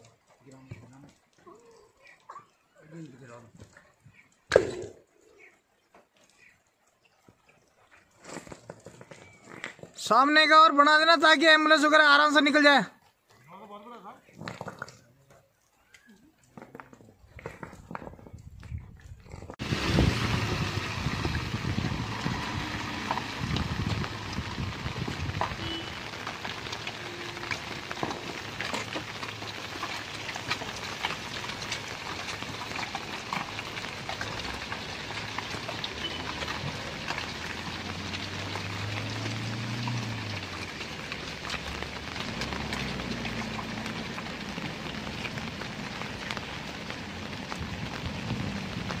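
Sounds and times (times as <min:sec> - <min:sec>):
raindrop ticks: 0:00.0 - 0:08.6, 0:20.9 - 0:49.0
steady rain falling: 0:00.0 - 0:13.1, 0:19.6 - 0:49.0.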